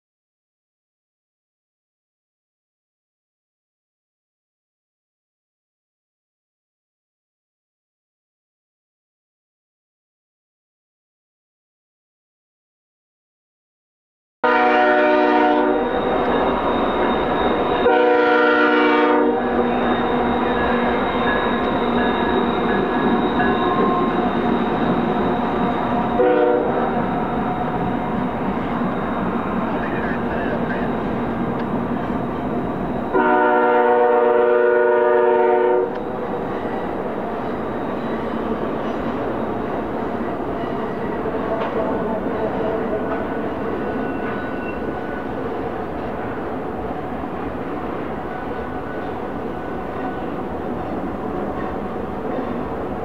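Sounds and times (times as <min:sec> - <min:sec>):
locomotive air horn blasts: 0:14.4 - 0:16.2, 0:17.8 - 0:19.6, 0:26.2 - 0:27.0, 0:33.1 - 0:36.0
freight train rumbling past: 0:14.4 - 0:53.0
high whine: 0:15.1 - 0:34.4.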